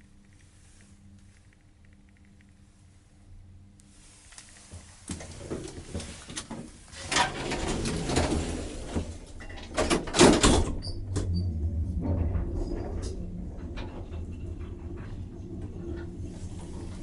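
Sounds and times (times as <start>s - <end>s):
lift clattering and knocking: 5.1s - 17.0s.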